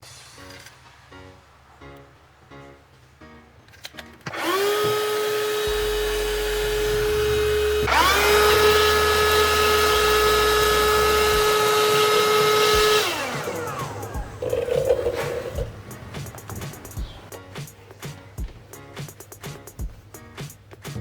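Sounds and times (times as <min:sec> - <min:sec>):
vacuum cleaner motor whining: 0:04.2 - 0:16.8.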